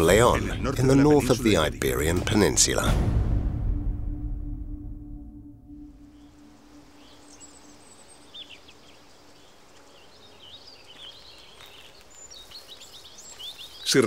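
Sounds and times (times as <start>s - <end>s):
faint outdoor ambience: 0.0s - 3.7s, 4.7s - 14.0s
low held tone: 3.1s - 8.7s
small birds chirping: 6.0s - 14.0s.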